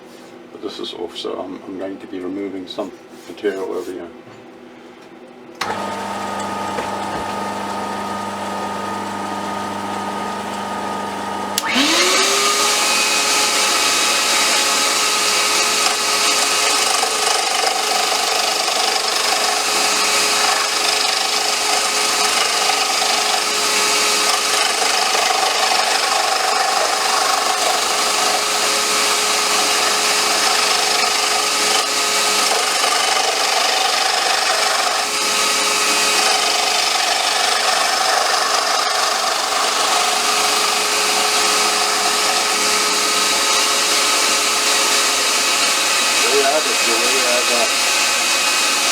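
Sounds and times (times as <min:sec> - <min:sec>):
lathe motor running: 0:05.6 - 0:48.9
tool scraping wood: 0:11.6 - 0:48.9.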